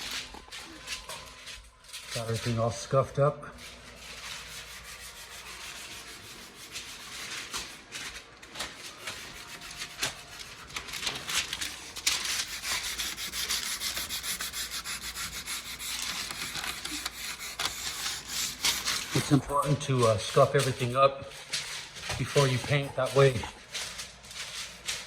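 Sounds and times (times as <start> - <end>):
sandpaper rubbing on wood: 2.2 - 20.9, 21.5 - 25.0.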